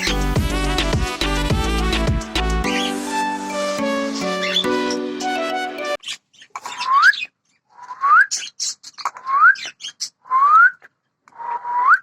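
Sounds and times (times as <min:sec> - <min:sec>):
music: 0:00.0 - 0:06.0.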